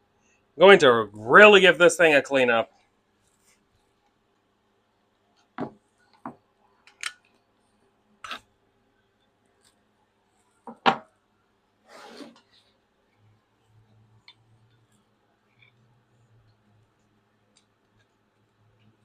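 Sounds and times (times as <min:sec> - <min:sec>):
scraping rustle: 0:11.9 - 0:12.7.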